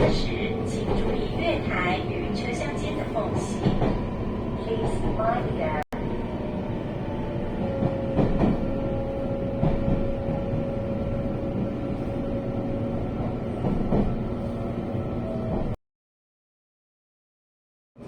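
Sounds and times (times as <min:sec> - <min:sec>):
train carriage rumble: 0:00.0 - 0:15.8.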